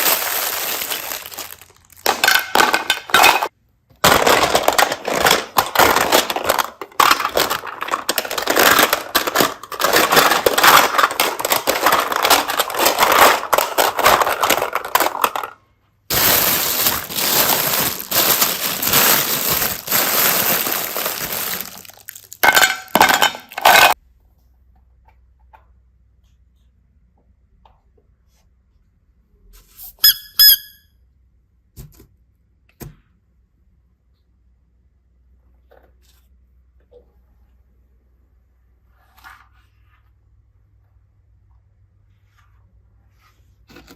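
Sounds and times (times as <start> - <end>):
slime squeaks: 29.9 - 30.8.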